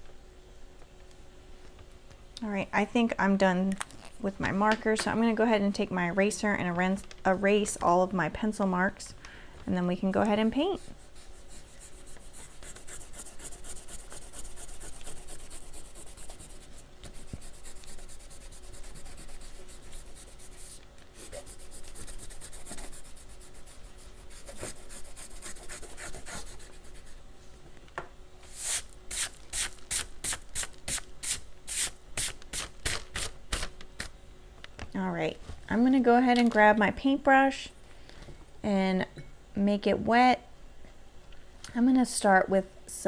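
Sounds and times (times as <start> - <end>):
eraser rubbing on paper: 10.7 - 27.2.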